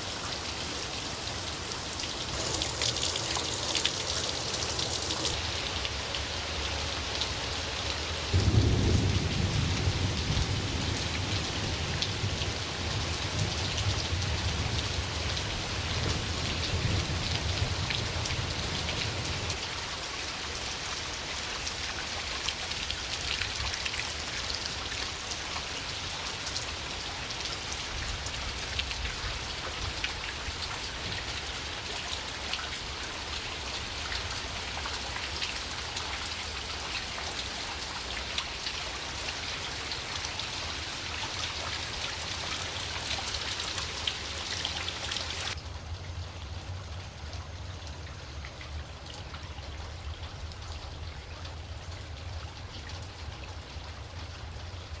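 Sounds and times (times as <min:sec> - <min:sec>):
steady rain falling: 0:00.0 - 0:55.0
thunder rumbling: 0:08.3 - 0:19.6.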